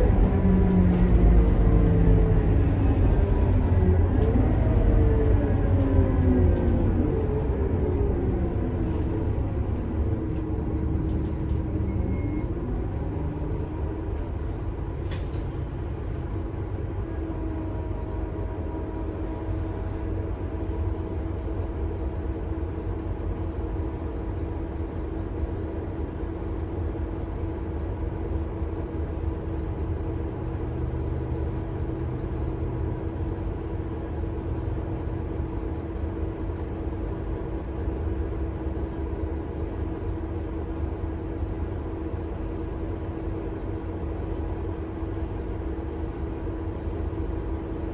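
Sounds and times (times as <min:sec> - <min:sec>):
bus engine rumble and whine: 0:00.0 - 0:47.9
sharp click: 0:15.1 - 0:15.5.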